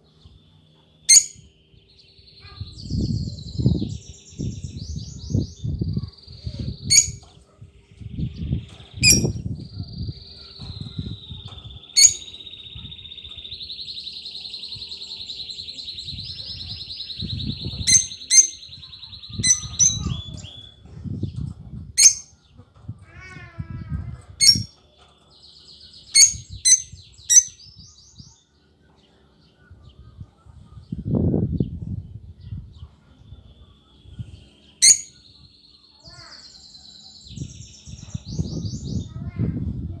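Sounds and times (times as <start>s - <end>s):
bird chirping: 0.0s - 7.4s, 8.0s - 20.8s, 22.0s - 22.4s, 24.4s - 24.7s, 25.3s - 29.2s, 33.3s - 39.3s
high bird trill: 0.2s - 7.3s, 8.2s - 20.8s, 22.0s - 22.4s, 24.3s - 24.8s, 25.8s - 27.8s, 34.5s - 40.0s.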